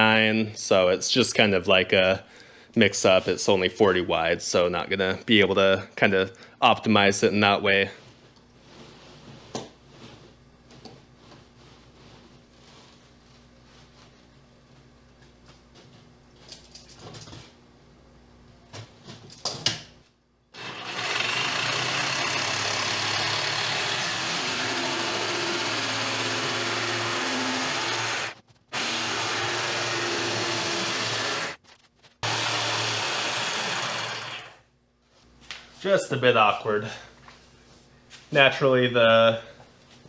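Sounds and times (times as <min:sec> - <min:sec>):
electric saw motor whining: 0:20.6 - 0:31.6, 0:32.2 - 0:34.6.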